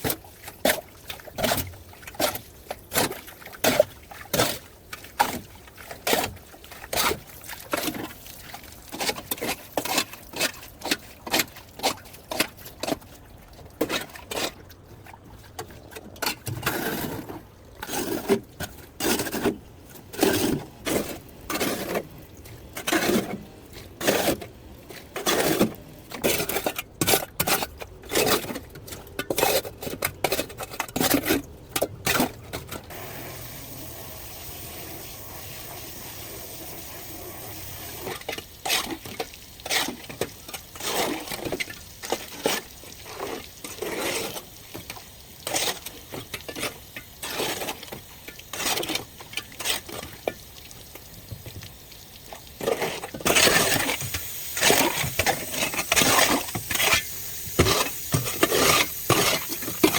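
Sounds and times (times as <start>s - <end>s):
steady hiss: 32.9s - 38.2s, 53.8s - 59.9s.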